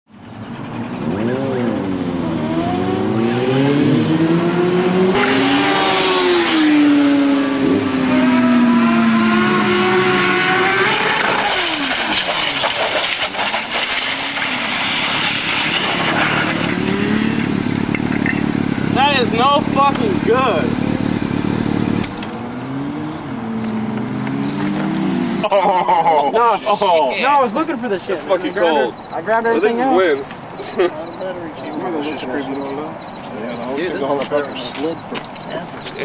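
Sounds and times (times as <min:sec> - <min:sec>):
motorcycle engine revving: 0:00.7 - 0:25.6.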